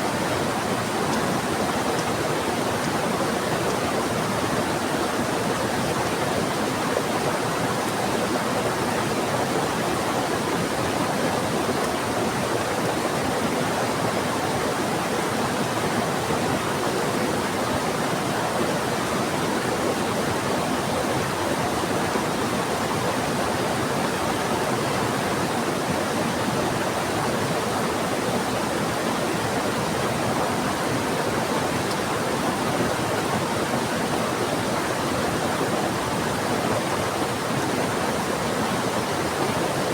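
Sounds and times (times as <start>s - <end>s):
fast-flowing river rushing: 0.0s - 39.9s.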